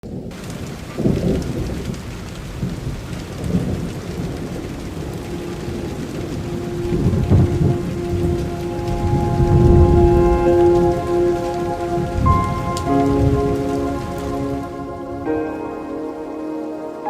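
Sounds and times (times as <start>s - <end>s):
heavy rain: 0.0s - 17.0s
rolling thunder: 0.1s - 17.0s.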